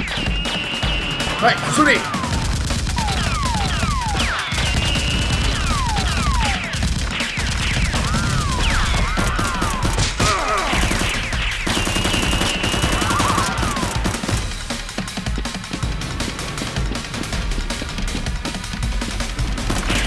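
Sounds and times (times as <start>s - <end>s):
high falling whistles: 0.0s - 14.1s
rapid gunfire: 0.0s - 20.0s.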